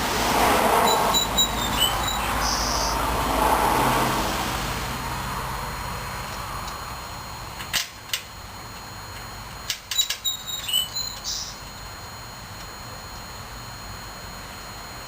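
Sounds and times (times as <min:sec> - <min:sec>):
high chirps: 0:00.8 - 0:03.0, 0:09.9 - 0:11.9.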